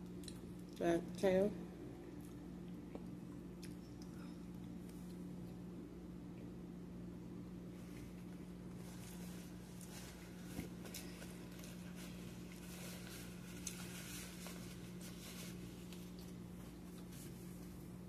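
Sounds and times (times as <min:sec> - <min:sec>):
chewing and wet mouth clicks: 0:00.0 - 0:00.8, 0:02.1 - 0:05.2
steady low hum: 0:00.0 - 0:18.0.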